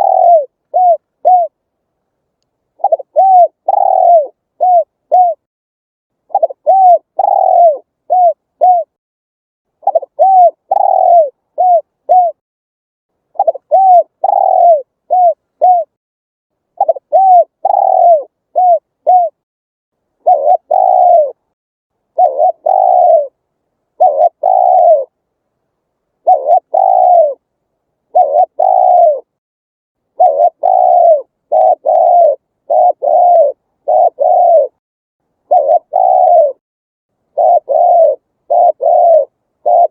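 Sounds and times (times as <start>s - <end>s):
dove cooing: 0.0s - 1.6s, 2.7s - 5.5s, 6.3s - 9.0s, 9.8s - 12.4s, 13.3s - 16.0s, 16.8s - 19.4s, 20.2s - 21.4s, 22.1s - 23.4s, 24.0s - 25.2s, 26.2s - 27.4s, 28.1s - 29.4s, 30.1s - 34.8s, 35.5s - 36.6s, 37.3s - 39.9s.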